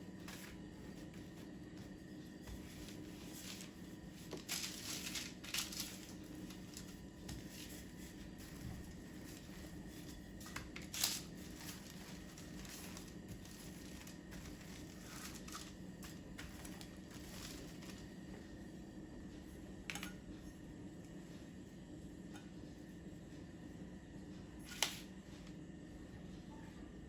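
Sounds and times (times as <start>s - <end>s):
low steady hum: 0.0s - 27.0s
hands rustling and crinkling: 1.2s - 18.2s.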